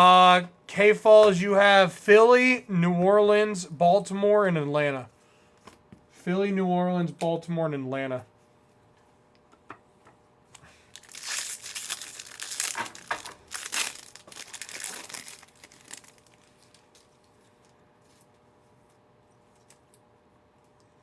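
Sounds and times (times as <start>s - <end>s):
card pack wrapper tearing and crinkling: 10.7s - 17.1s.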